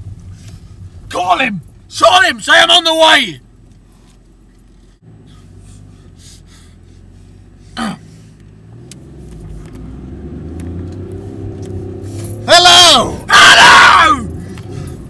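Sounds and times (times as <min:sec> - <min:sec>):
car engine accelerating: 0:03.4 - 0:15.0.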